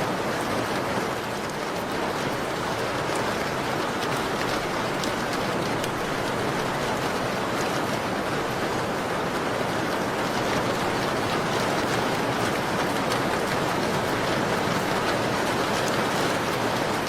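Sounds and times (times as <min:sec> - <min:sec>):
steady rain falling: 0:00.0 - 0:17.0
wood fire crackling: 0:10.2 - 0:17.0.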